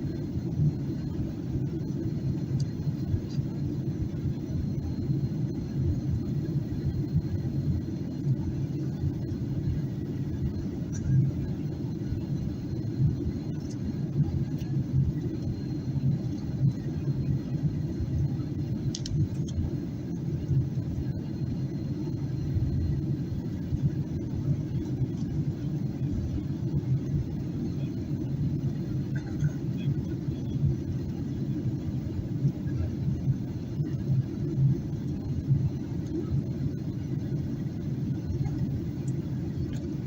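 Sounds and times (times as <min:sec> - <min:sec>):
airplane cabin engine rumble: 0:00.0 - 0:40.0
faint clicks: 0:18.9 - 0:19.6.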